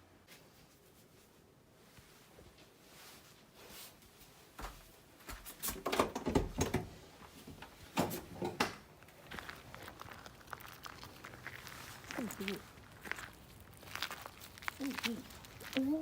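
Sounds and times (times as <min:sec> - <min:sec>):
knocks and clatters: 0:05.7 - 0:06.9.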